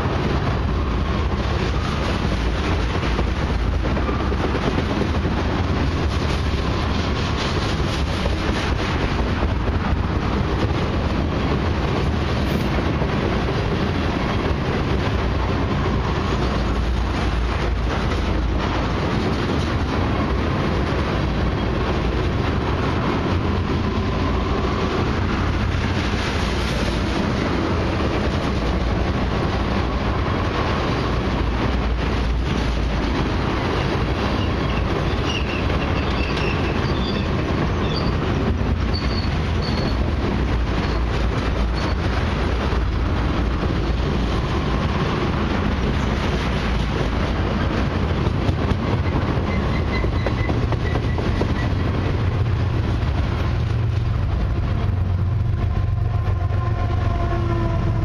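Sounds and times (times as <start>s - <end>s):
train wheels rumbling on rail: 0.0s - 58.0s
clicking and clatter of wheels: 25.0s - 56.3s.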